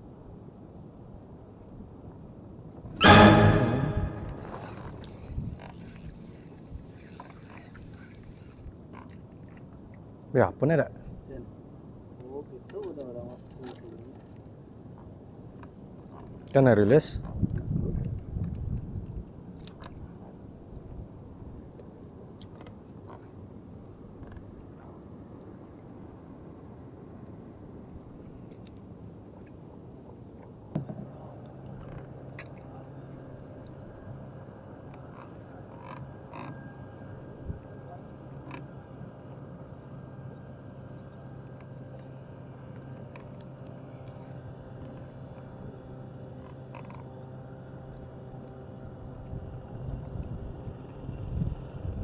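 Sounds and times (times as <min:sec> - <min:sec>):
water around a canoe: 0:00.0 - 0:03.0, 0:04.5 - 0:52.0
sharp knock: 0:03.0 - 0:04.7
low steady hum: 0:20.3 - 0:52.0.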